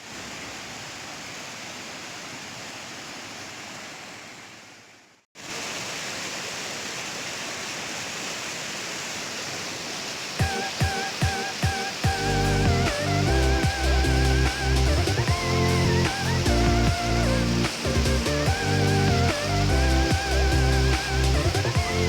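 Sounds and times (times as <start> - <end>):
river water rushing over rapids: 0.0 - 4.8, 5.4 - 22.0
music: 10.4 - 22.0.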